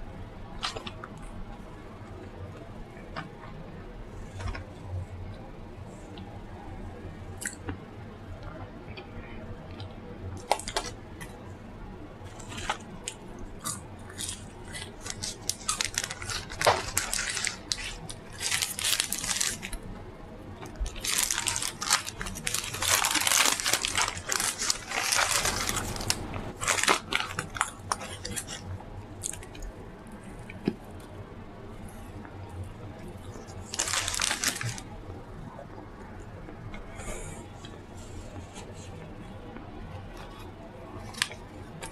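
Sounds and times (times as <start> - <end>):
person chewing crunchy food: 12.3 - 19.8, 20.6 - 29.7.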